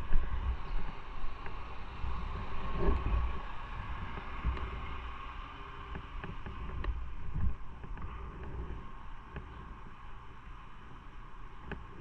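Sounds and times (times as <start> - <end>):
wind rushing over microphone: 0.0 - 10.1.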